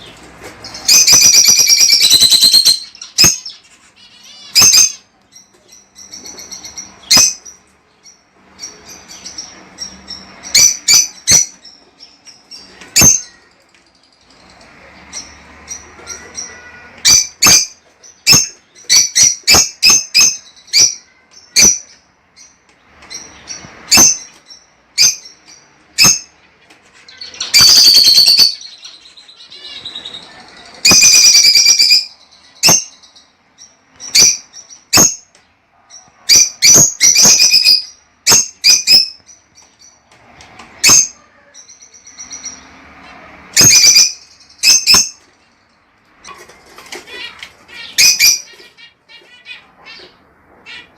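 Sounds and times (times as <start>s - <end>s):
lovebirds chirping: 0.0s - 50.9s.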